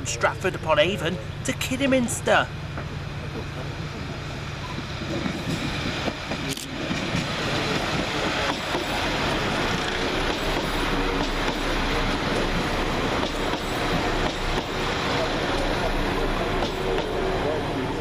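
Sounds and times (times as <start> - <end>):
diesel train engines: 0.0 - 18.0
train wheels on rails: 0.4 - 18.0.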